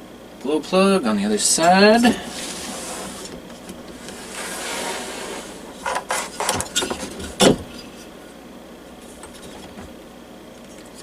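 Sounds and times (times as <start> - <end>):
scraping rustle: 2.0 - 8.1.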